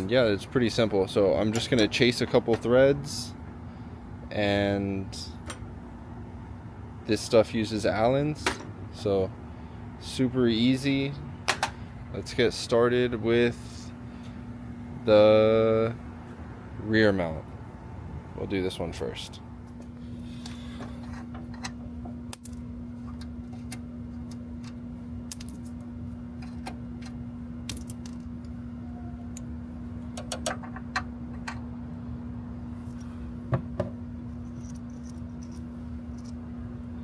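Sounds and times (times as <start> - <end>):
steady hum: 22.1 - 23.0, 24.9 - 26.2, 27.0 - 28.7
metal hand tools clinking: 27.7 - 28.3.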